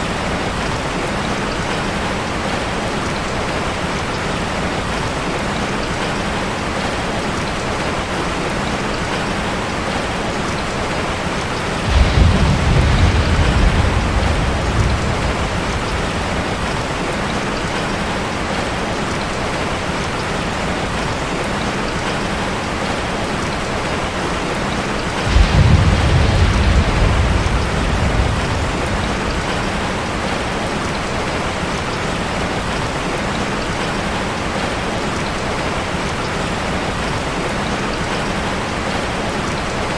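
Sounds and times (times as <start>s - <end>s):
rain on a metal roof: 0.0s - 39.9s
thunder rumbling: 11.3s - 18.8s, 25.0s - 31.8s.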